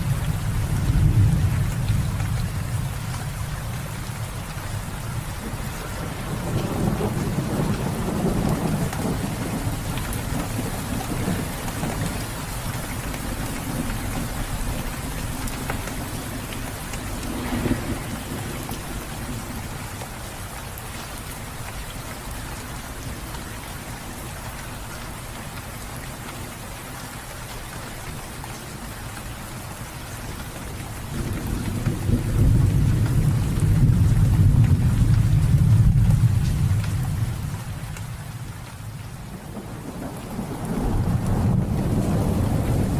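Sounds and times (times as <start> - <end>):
low rolling thunder: 0.0 - 4.4, 5.1 - 19.9, 31.0 - 42.9
steady rain falling: 0.0 - 42.9.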